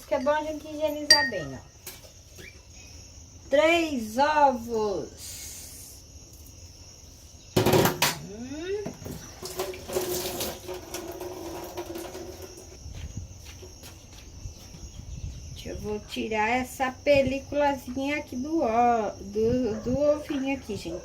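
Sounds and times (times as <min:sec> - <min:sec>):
crickets chirping: 0:00.0 - 0:21.0
tap running into a sink: 0:08.9 - 0:12.6.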